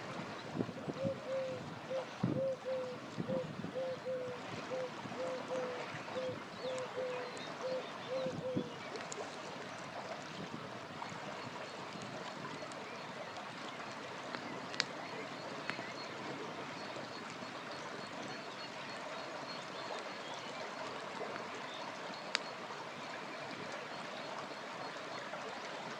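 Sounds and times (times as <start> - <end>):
campfire crackling: 13.8 - 15.0.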